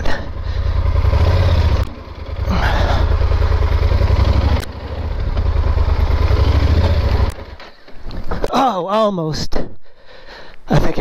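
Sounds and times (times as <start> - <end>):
motorcycle engine pulling hard: 0.0 - 8.4.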